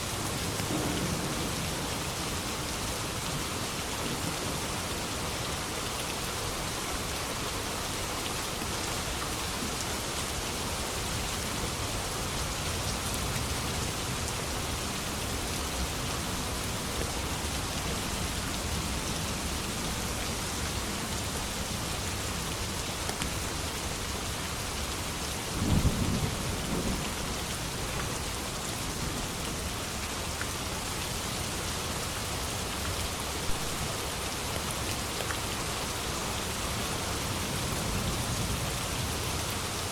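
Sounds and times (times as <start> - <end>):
steady rain: 0.0 - 39.9
low thunder rumble: 0.4 - 2.0.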